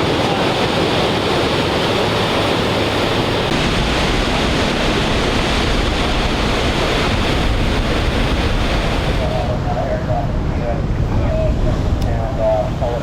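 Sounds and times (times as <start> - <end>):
ocean surf breaking on rocks: 0.0 - 9.6.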